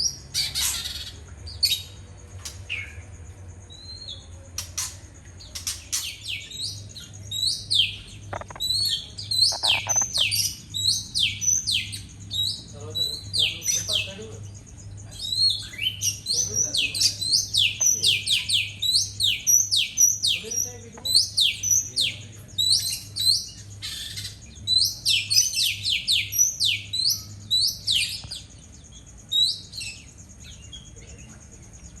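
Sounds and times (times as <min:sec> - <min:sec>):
bird singing whistled notes: 0:06.1 - 0:14.3, 0:15.1 - 0:28.6.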